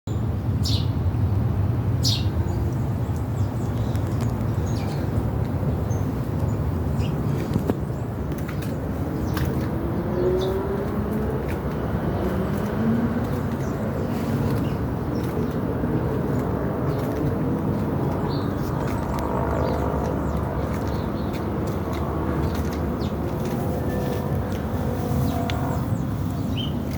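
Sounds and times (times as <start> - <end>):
steady low rumble: 0.9 - 26.9.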